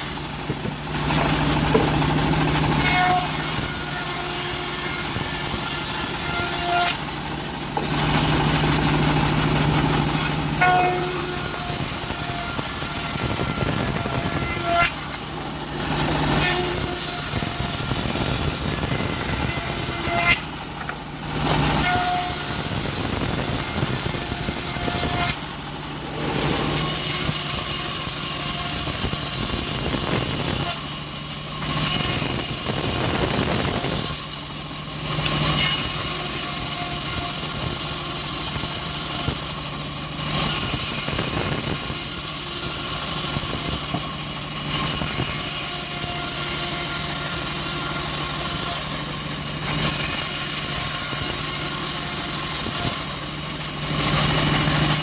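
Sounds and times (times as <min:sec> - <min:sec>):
saw blade hissing in wood: 0:40.4 - 0:44.2.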